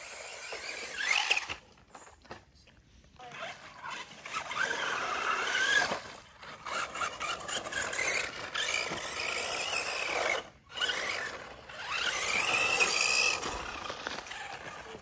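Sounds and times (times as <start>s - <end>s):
toy car electric motor whining: 0.0s - 2.2s, 3.2s - 15.0s
rough scraping and rattling: 3.4s - 15.0s.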